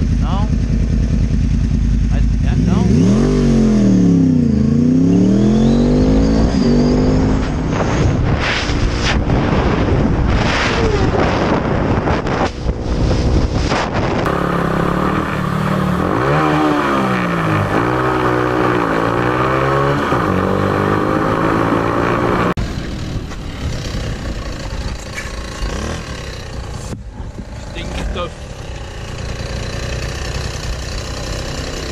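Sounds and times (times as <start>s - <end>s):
motorcycle engine revving: 0.0s - 31.9s
wind noise: 5.2s - 18.0s, 19.8s - 27.8s.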